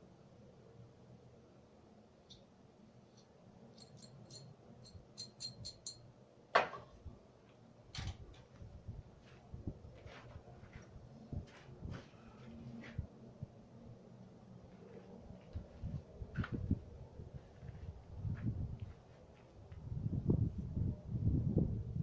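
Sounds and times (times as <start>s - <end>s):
small metal parts clicking: 3.1s - 6.0s.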